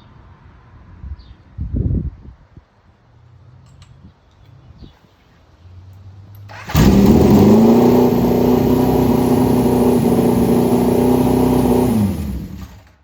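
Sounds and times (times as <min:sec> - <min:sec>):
motorcycle engine starting and idling: 0:06.4 - 0:13.0.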